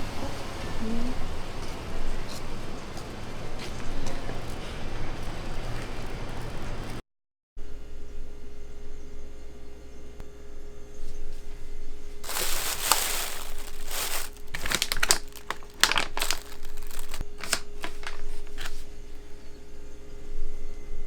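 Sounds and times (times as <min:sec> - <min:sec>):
packaging crinkling: 0:12.2 - 0:18.8.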